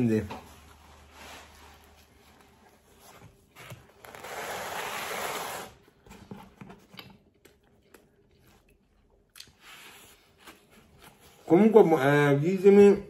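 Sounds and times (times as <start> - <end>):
man chewing food: 6.9 - 9.6.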